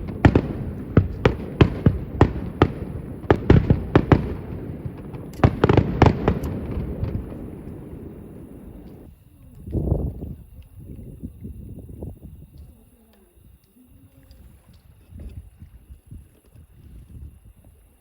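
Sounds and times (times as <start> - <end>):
distant fireworks bursting: 0.0 - 9.1.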